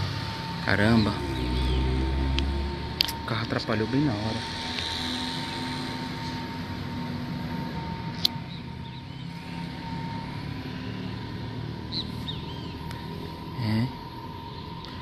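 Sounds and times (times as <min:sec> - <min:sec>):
steady drone with held tone: 0:00.0 - 0:15.0.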